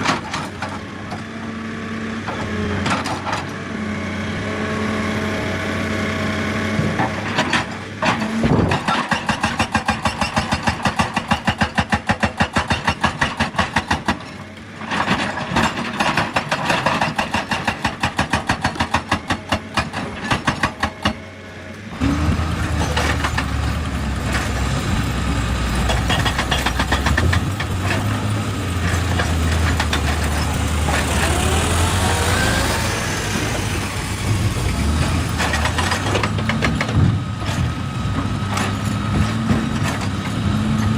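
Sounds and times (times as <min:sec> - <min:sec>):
diesel engine under load: 0:00.0 - 0:40.9
excavator mechanical hammering: 0:06.8 - 0:14.4, 0:15.1 - 0:21.3, 0:22.0 - 0:40.9.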